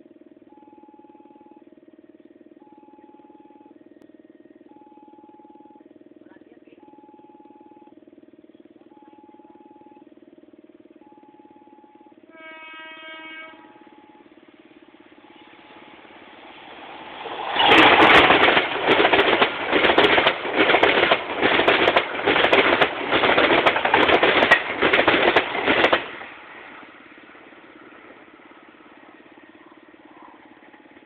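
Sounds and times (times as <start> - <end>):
faint train horn: 11.3 - 16.3
train wheels clattering: 15.4 - 26.5.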